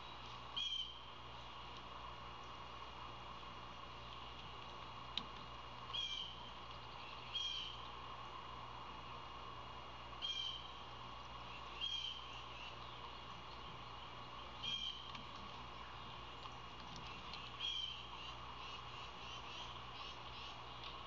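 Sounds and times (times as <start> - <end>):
bird calling: 0.0 - 1.1, 5.9 - 7.9, 10.2 - 10.8, 11.4 - 16.4, 17.0 - 21.0
steady outdoor hum: 0.0 - 21.0.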